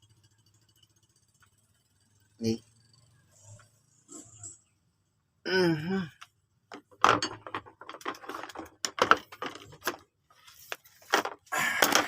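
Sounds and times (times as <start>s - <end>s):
metal parts clicking and rattling: 6.7s - 12.0s.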